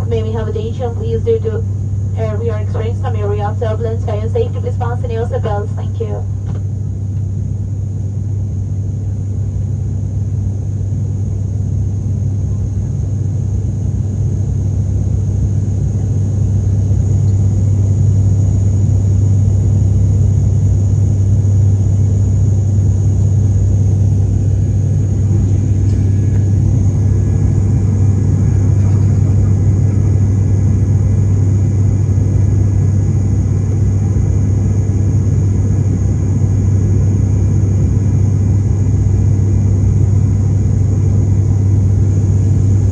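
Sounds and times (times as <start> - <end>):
airliner cabin drone: 0.0 - 42.9
faint high whine: 15.1 - 42.9.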